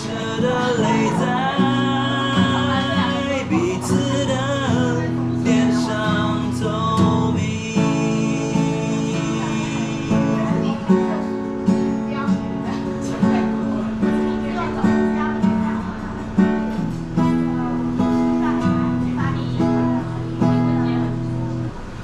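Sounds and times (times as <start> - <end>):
man singing: 0.0 - 11.4
acoustic guitar: 0.0 - 22.0.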